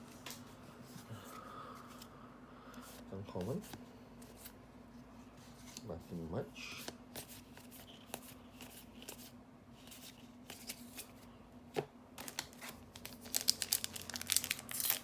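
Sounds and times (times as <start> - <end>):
wrapper tearing and crinkling: 12.2 - 15.0.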